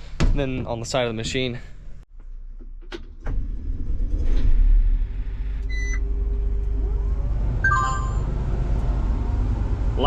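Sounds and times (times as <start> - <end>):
diesel engine rumbling: 3.5 - 10.0
electronic alarm beeps: 7.6 - 8.3.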